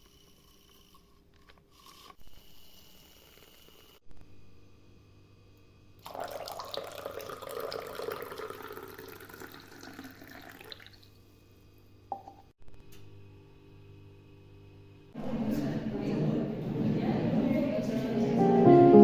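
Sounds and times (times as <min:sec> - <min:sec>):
water pouring: 0:06.0 - 0:11.2.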